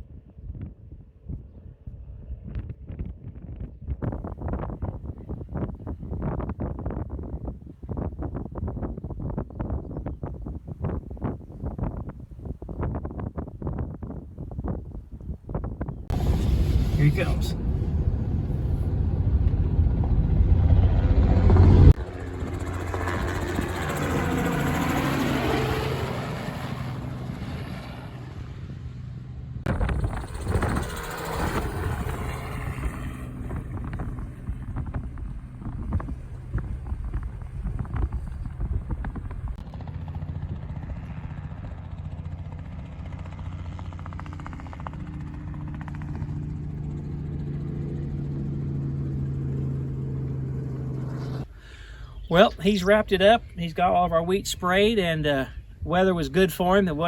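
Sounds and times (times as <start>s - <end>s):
wind buffeting microphone: 0.0s - 51.4s
helicopter drone: 15.8s - 57.0s.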